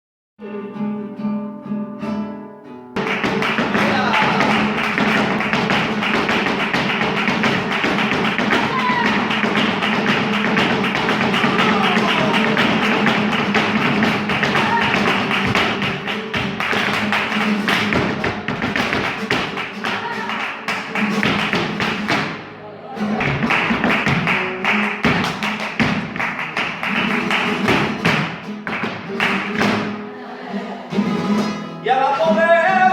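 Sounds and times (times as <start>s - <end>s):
flamenco guitar strumming: 0.4s - 32.9s
dancer's stamping footwork: 3.0s - 22.5s, 23.2s - 30.0s.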